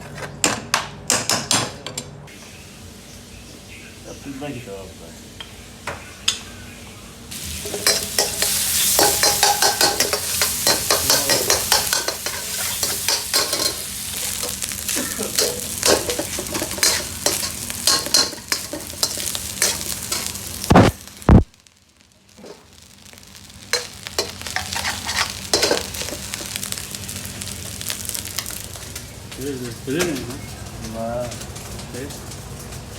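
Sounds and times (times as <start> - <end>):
food sizzling in a pan: 2.3 - 32.9
metal spoon scraping a pan: 7.6 - 14.4, 15.4 - 20.4, 23.8 - 26.6.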